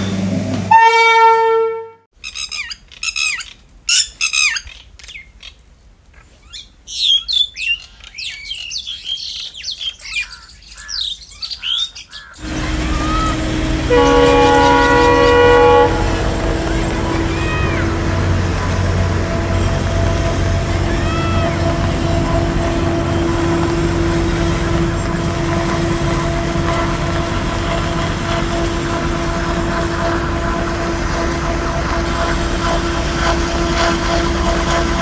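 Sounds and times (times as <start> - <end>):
train running rumble: 0.0 - 1.8, 12.4 - 35.0
locomotive horn blast: 0.0 - 2.1, 12.4 - 35.0
birds chirping: 6.2 - 29.5.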